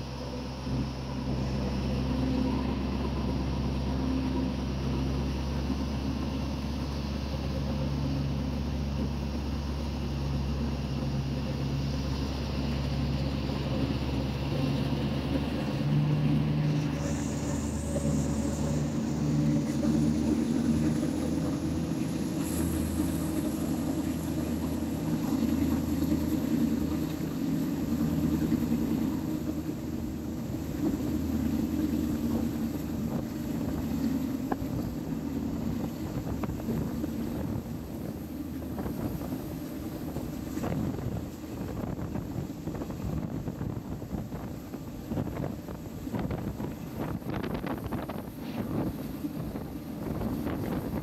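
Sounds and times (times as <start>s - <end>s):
faint high whine: 0.0s - 42.2s
diesel engine hum: 0.0s - 51.0s
train wheels rumbling: 11.9s - 44.8s.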